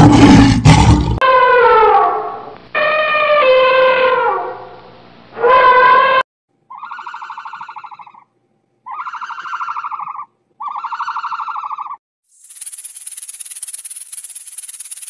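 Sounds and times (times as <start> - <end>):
elephant trumpeting: 1.2 - 4.7, 5.4 - 8.2
pulsing elephant call: 2.8 - 4.6, 5.4 - 8.2, 8.9 - 12.0.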